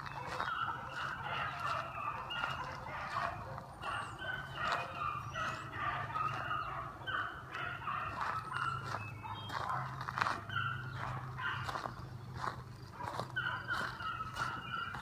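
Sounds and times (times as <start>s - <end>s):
hounds baying: 0.0s - 15.0s.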